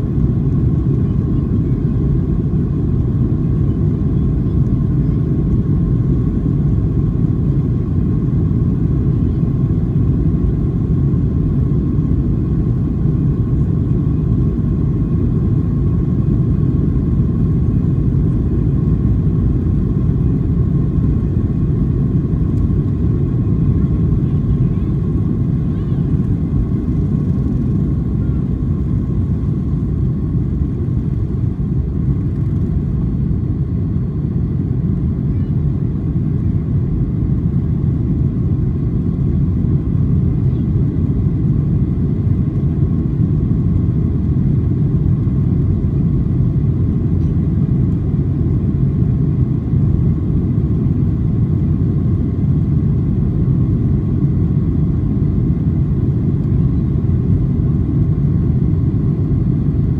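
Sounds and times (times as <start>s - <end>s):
airplane cabin rumble: 0.0s - 59.9s.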